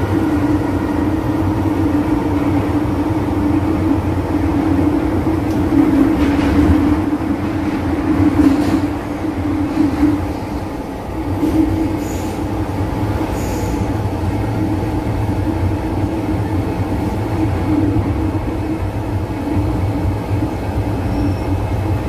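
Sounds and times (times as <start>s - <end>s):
train car hum and wheel rumble: 0.0s - 22.0s
high wheel squeals: 21.0s - 21.8s.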